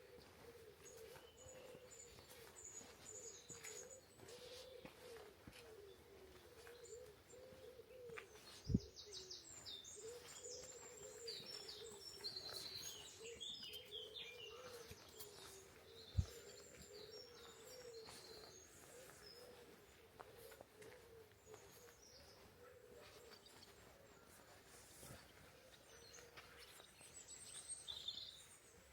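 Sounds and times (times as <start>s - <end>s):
pigeon cooing: 0.0s - 2.4s, 3.5s - 9.4s, 13.2s - 23.4s
songbirds chirping and trilling: 0.0s - 28.9s.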